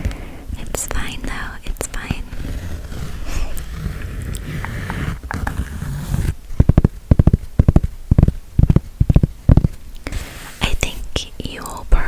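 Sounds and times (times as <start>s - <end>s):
fingers tapping on a cap: 6.6s - 9.8s.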